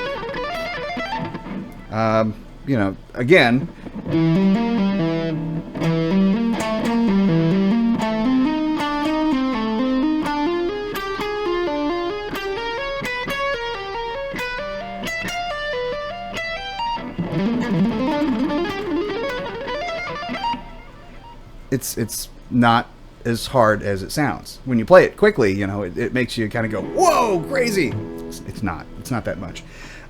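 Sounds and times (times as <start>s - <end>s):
fast electric guitar lick: 0.0s - 1.9s, 3.6s - 21.4s, 26.8s - 30.0s.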